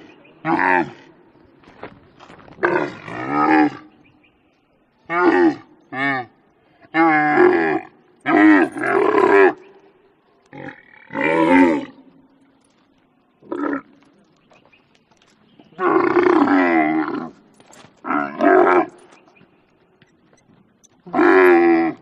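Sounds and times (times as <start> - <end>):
camel roaring: 2.6 - 4.0, 5.1 - 9.6, 10.5 - 12.1, 15.8 - 17.4, 18.0 - 19.1, 21.0 - 22.0.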